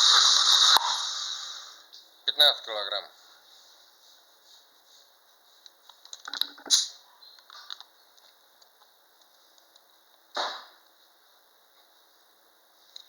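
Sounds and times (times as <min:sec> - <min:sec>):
short hiss: 0:00.0 - 0:02.0.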